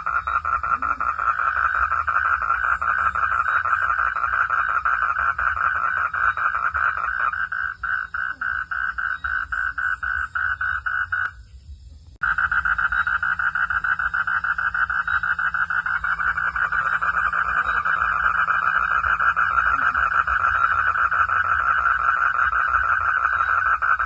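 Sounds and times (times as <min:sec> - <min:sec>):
frogs calling in chorus: 0:00.0 - 0:11.4, 0:12.2 - 0:24.0.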